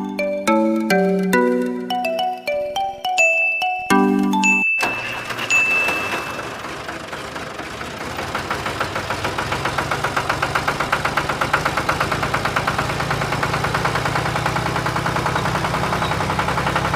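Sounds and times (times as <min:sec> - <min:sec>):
single ding: 0:03.2 - 0:06.5
engine idling with ticking: 0:04.8 - 0:16.9.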